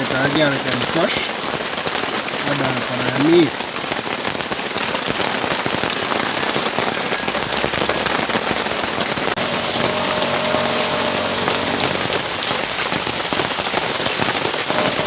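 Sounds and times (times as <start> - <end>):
heavy rain on umbrella: 0.0 - 15.0
low hum: 9.4 - 15.0
steady high whine: 9.4 - 15.0.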